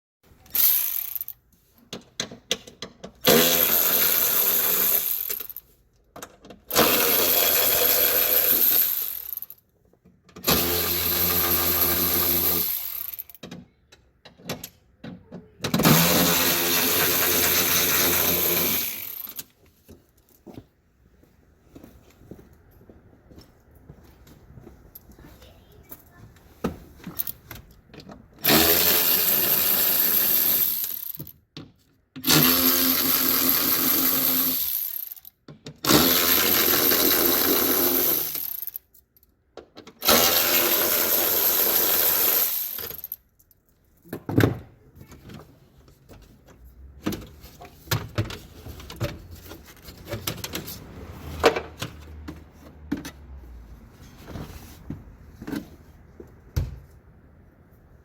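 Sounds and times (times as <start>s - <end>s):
parts clicking and knocking: 0.4s - 20.6s, 25.9s - 57.1s
power tool running: 3.2s - 5.6s, 6.7s - 9.4s, 10.4s - 13.3s, 15.8s - 19.4s, 28.4s - 31.2s, 32.2s - 35.1s, 35.9s - 38.7s, 40.0s - 43.1s.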